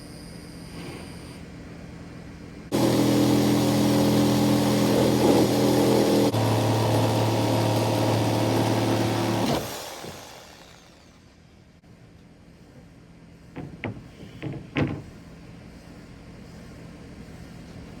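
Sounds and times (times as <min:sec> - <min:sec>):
motor running: 0:02.7 - 0:11.5.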